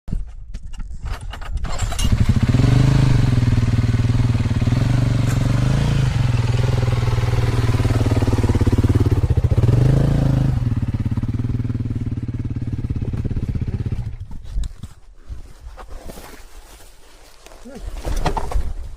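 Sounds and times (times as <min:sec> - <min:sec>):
motorcycle engine revving: 0:01.7 - 0:14.3.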